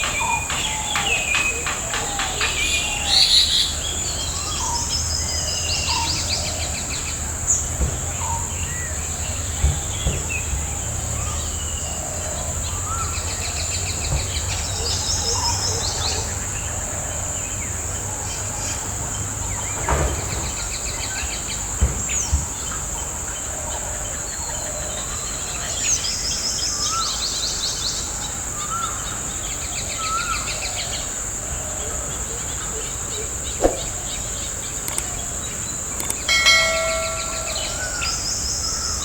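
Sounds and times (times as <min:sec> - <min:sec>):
birds trilling and whistling: 0:00.0 - 0:06.8, 0:33.2 - 0:39.0.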